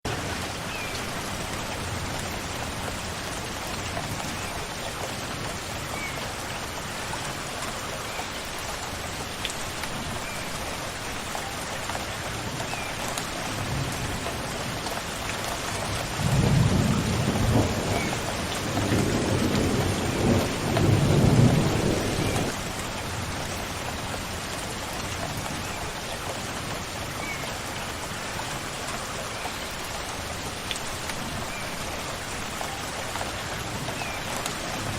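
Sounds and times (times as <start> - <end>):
steady rain falling: 0.1 - 34.9
low rumble of thunder: 16.1 - 22.6.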